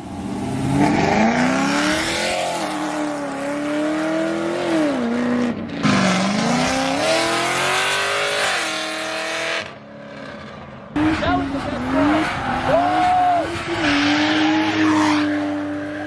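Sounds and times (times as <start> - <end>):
car engine revving hard: 0.6 - 9.8.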